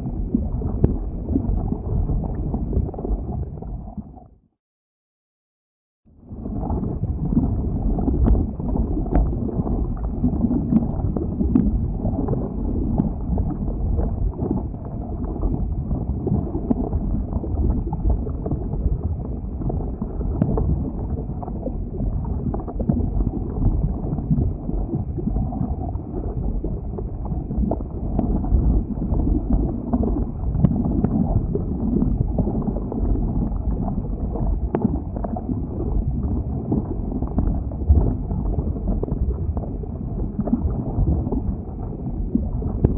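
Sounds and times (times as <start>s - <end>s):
lava rumbling and rushing: 0.0s - 4.0s, 6.2s - 42.9s.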